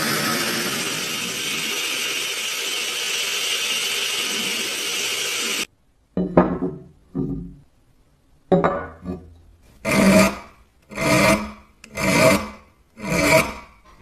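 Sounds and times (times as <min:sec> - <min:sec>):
power tool running on metal: 0:00.0 - 0:05.7.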